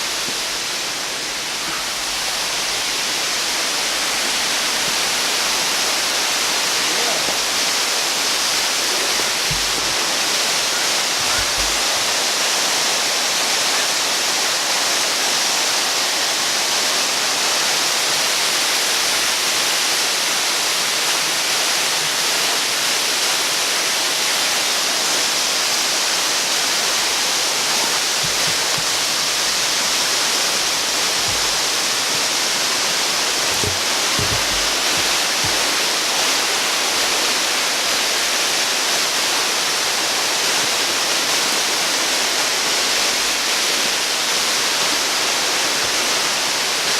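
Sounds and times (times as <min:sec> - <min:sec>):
waterfall roaring: 0:00.0 - 0:46.9
camera handling thumps: 0:28.2 - 0:29.0, 0:33.5 - 0:35.6.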